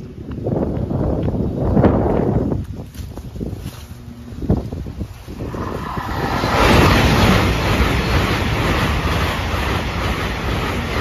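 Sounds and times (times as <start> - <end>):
train passing at speed: 4.1 - 11.0.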